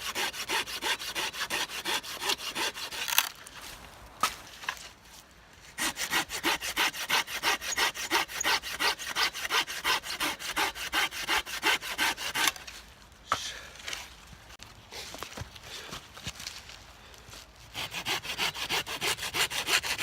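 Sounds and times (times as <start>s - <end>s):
hand saw cutting wood: 0.0s - 3.4s, 5.8s - 12.7s, 17.7s - 20.0s.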